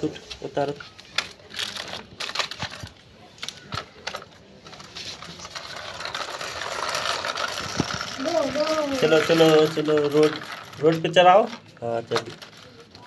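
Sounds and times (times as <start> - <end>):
toys clicking and clattering: 0.6 - 13.0.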